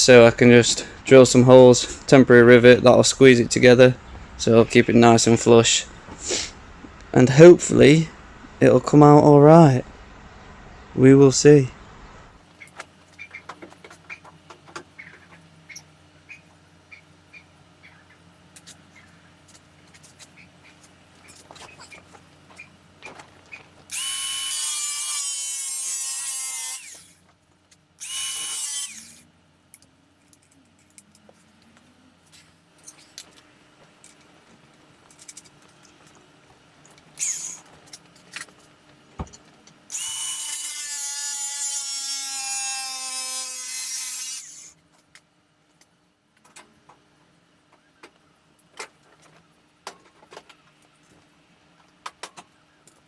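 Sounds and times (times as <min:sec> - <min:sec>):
electric power tool on metal: 0:23.9 - 0:27.2, 0:28.0 - 0:29.3, 0:37.2 - 0:37.6, 0:39.9 - 0:44.8.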